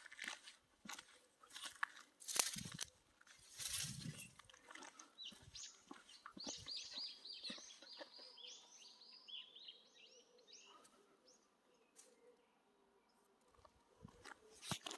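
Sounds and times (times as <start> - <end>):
small bird chirping: 5.1 - 10.9.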